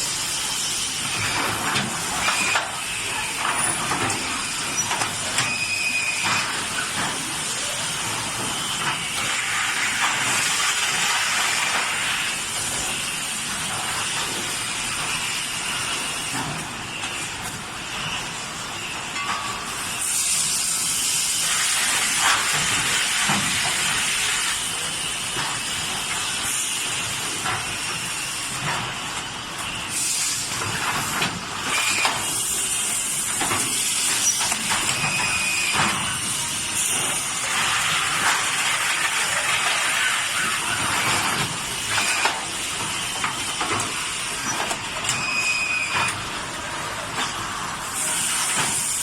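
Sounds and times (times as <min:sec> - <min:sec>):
labeling machine hissing: 0:19.7 - 0:49.0.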